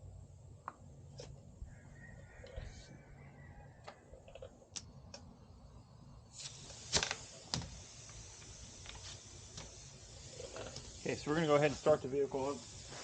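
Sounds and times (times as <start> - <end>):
faint steady hiss: 5.1 - 13.0.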